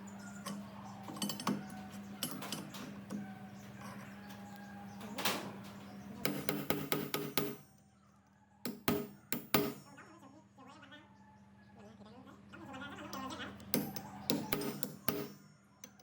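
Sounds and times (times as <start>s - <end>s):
metal parts clinking: 0.3s - 3.1s.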